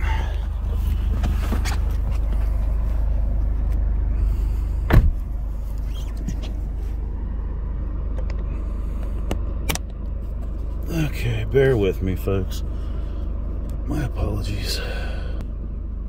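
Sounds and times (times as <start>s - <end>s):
car engine idling: 0.0s - 16.0s
car door shutting: 4.8s - 5.3s.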